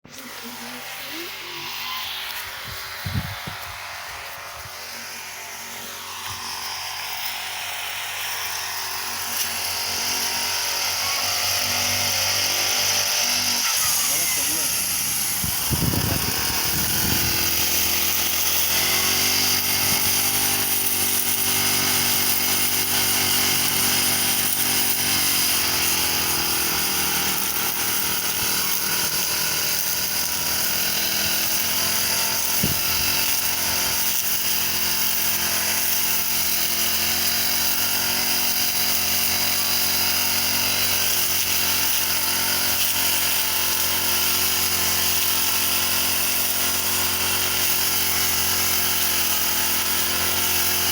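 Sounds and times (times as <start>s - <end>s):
brush cutter engine cutting grass: 0.0s - 50.9s.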